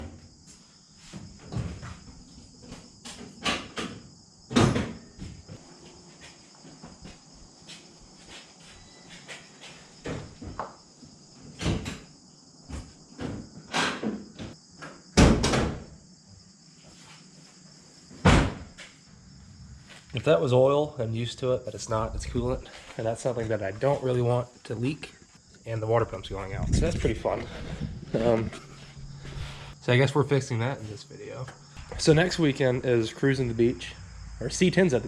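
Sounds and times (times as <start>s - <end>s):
crickets chirring: 0.0s - 35.0s
knocks and clunks: 1.2s - 5.5s, 11.4s - 12.1s.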